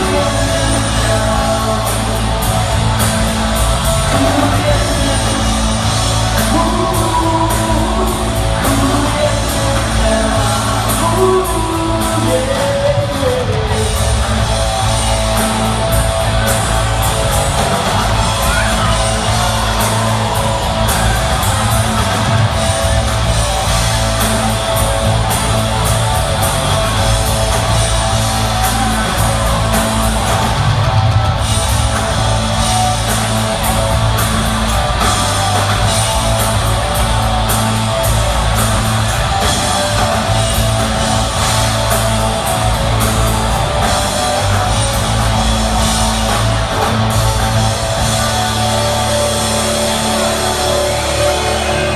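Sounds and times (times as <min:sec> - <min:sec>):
person singing: 0:00.0 - 0:14.5
electric guitars: 0:00.0 - 0:51.9
steady drum beat: 0:00.0 - 0:51.9.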